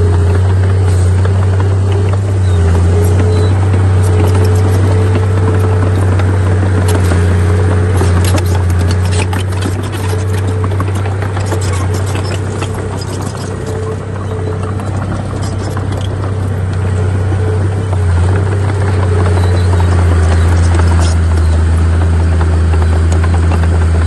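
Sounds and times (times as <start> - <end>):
diesel earthmoving machinery running: 0.0 - 24.0
clanks and scrapes: 0.8 - 21.9.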